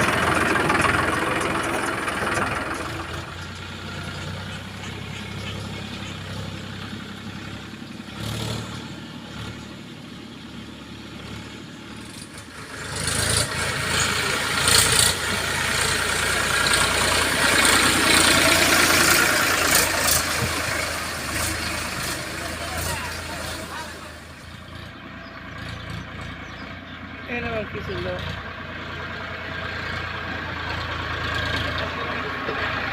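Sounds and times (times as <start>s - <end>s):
diesel engine idling: 0.0s - 32.9s.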